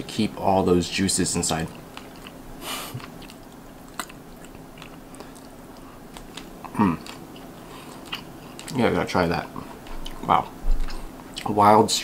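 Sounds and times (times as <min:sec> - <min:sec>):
person chewing: 0:01.6 - 0:08.8, 0:09.6 - 0:11.5.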